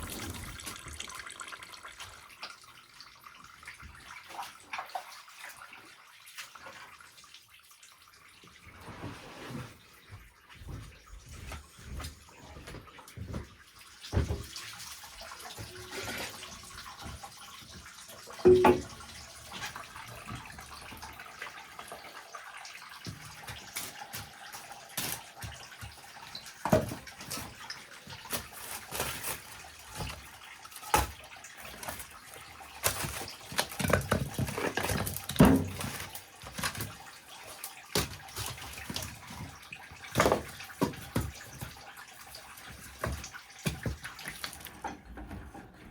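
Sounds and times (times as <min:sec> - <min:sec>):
liquid splashing in a vessel: 0:00.0 - 0:08.9, 0:12.6 - 0:45.9
containers knocking and clattering: 0:18.4 - 0:19.1, 0:32.8 - 0:37.0.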